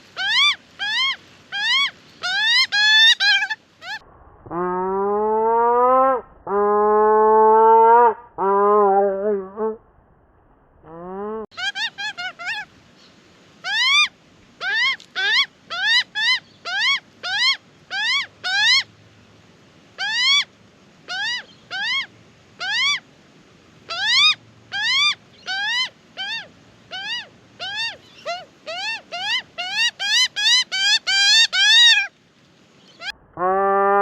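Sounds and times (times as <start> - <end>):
young magpie squawking: 0.2 - 4.0, 11.6 - 12.7, 13.6 - 18.8, 20.0 - 20.4, 21.1 - 23.0, 23.9 - 32.1.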